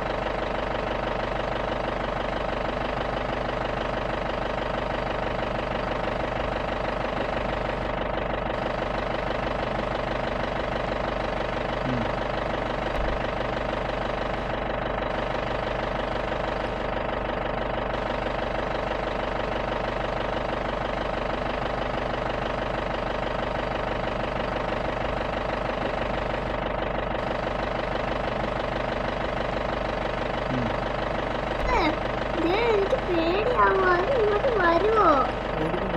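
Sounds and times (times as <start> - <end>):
engine running: 0.0 - 35.9.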